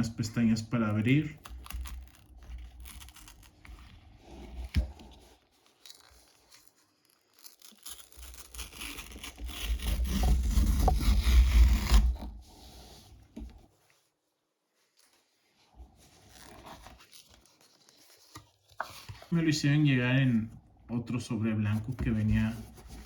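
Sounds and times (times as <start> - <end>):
cardboard envelope ripping: 0.0 - 12.8, 16.0 - 19.4
cardboard handling: 0.0 - 13.9, 15.0 - 19.4, 21.7 - 23.0.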